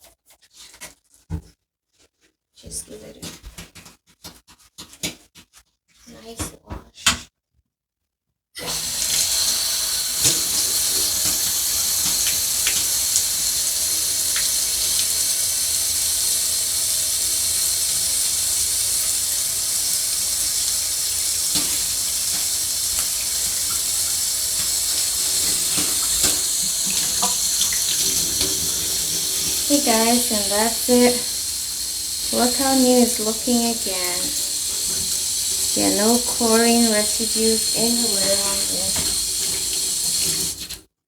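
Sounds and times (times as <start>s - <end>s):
tap water running into sink: 8.6s - 40.9s.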